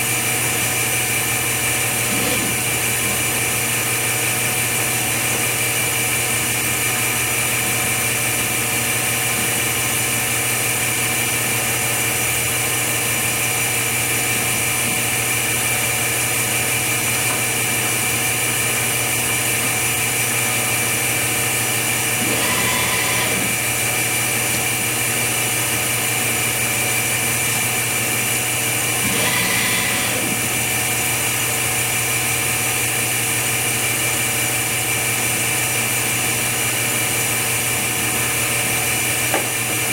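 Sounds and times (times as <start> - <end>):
machine hum with high whine: 0.0 - 39.9.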